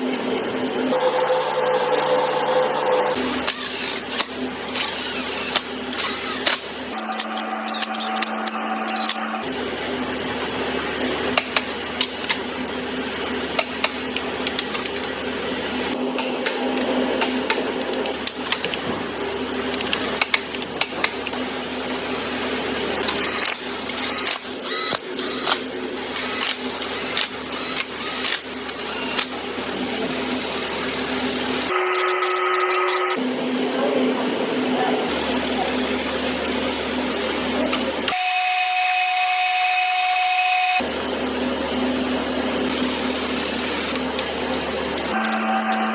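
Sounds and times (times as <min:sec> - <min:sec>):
machinery humming: 0:00.4 - 0:10.2, 0:42.7 - 0:45.9
power tool bursts: 0:03.2 - 0:09.5, 0:23.0 - 0:29.4.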